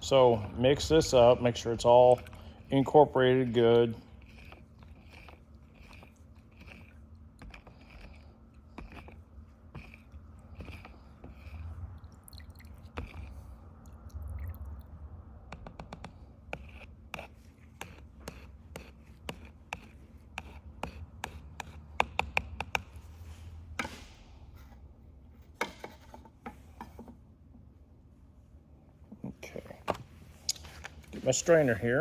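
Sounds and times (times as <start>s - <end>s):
stirrer scraping mixing cup: 0.0s - 13.7s, 15.8s - 22.8s.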